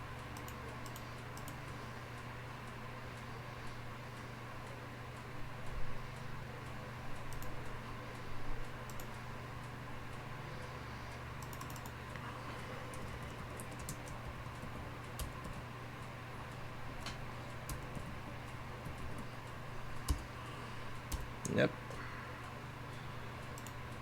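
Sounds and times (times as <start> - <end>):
low steady hum: 0.0 - 24.0
keyboard keystroke clicks: 11.4 - 12.0, 23.6 - 23.8.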